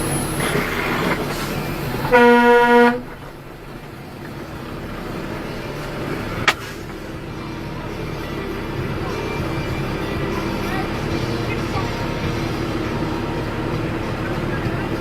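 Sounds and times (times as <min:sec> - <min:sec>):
car horn honk: 0:00.0 - 0:03.7
vehicle road noise: 0:00.0 - 0:15.0.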